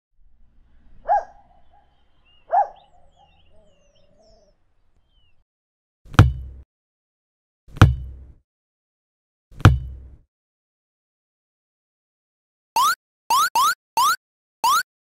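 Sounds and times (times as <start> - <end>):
loud bird calls: 0.8 - 5.4
faint high chirping: 1.0 - 5.4
sharp knock: 6.1 - 6.6, 7.7 - 8.4, 9.6 - 10.2.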